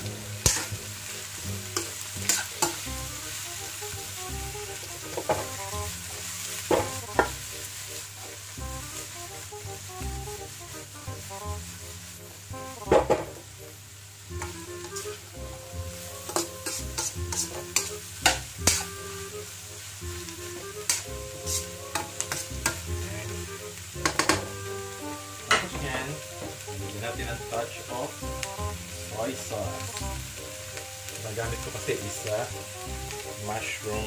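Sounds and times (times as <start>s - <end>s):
vegetables sizzling in a wok: 0.0s - 34.0s
metal spatula scraping pan: 0.4s - 0.8s, 1.8s - 2.8s, 16.2s - 18.9s, 20.8s - 22.9s, 24.0s - 24.6s.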